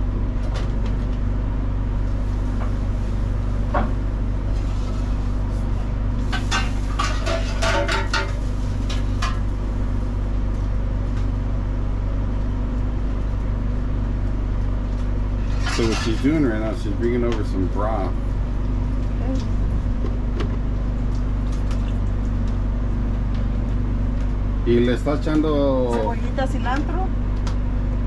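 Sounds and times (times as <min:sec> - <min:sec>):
low machine hum: 0:00.0 - 0:28.0
dishes and utensils clattering: 0:06.3 - 0:08.4, 0:15.4 - 0:16.3.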